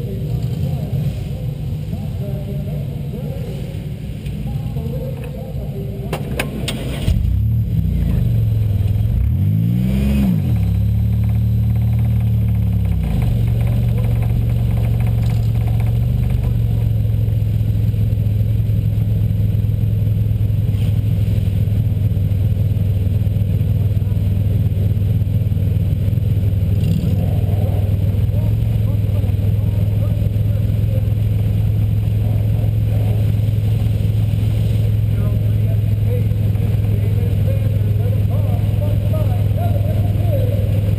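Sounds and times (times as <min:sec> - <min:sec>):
car engine starting and idling: 0:00.0 - 0:40.9.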